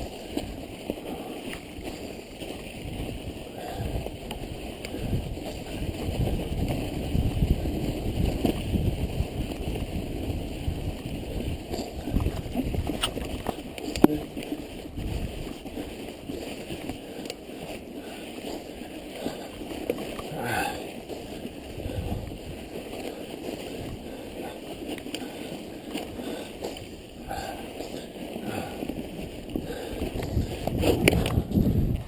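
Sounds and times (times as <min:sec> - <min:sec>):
wind on microphone: 0:00.0 - 0:17.2, 0:18.0 - 0:32.0
bike tyres rumbling on snow: 0:00.0 - 0:32.0
bike clicks and knocks: 0:11.6 - 0:15.6, 0:29.5 - 0:32.0.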